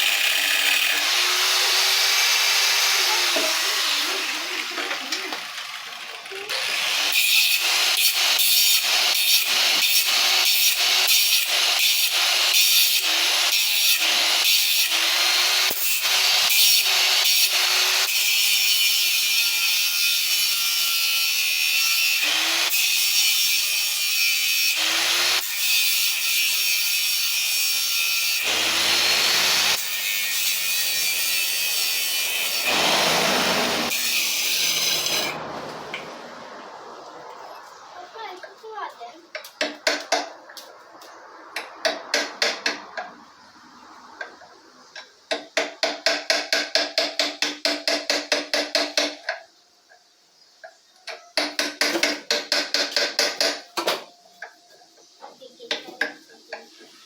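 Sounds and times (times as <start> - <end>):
harsh rasping tool: 0.0 - 35.4.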